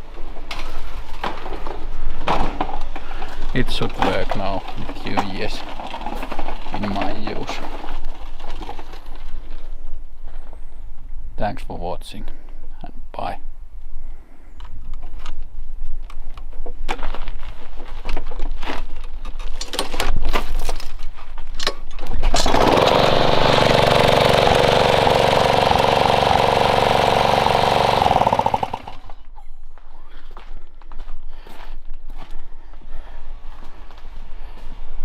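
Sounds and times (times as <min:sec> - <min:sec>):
lawn mower engine running: 0:22.3 - 0:29.3
engine knocks and clatters: 0:22.4 - 0:29.2.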